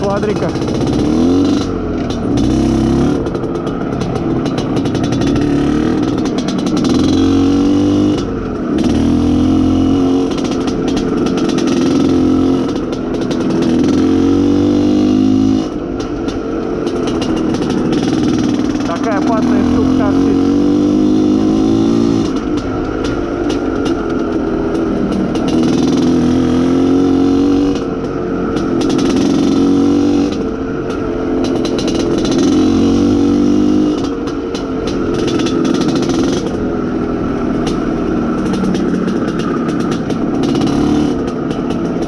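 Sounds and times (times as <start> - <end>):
two-stroke motorcycle engine revving: 0.0 - 42.0.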